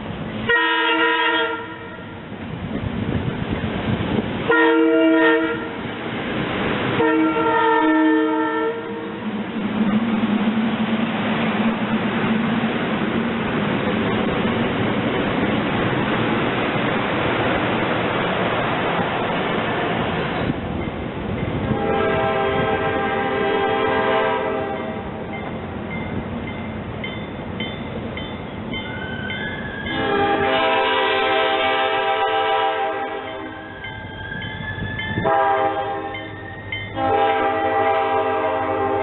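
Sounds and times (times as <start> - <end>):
moving train rushing: 0.0 - 39.0
train horn blasts: 0.5 - 2.2, 4.4 - 5.8, 6.9 - 9.2, 21.6 - 25.2, 29.9 - 33.7, 35.1 - 39.0.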